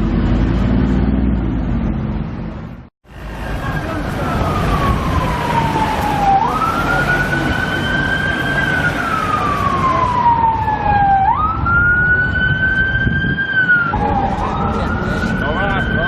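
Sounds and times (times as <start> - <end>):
traffic noise: 0.0 - 16.0
police siren wailing: 3.2 - 16.0.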